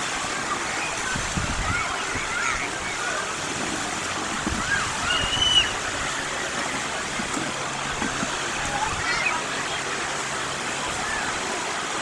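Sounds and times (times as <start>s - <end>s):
sea waves breaking on beach: 0.0s - 12.0s
distant high shouts: 4.6s - 5.8s.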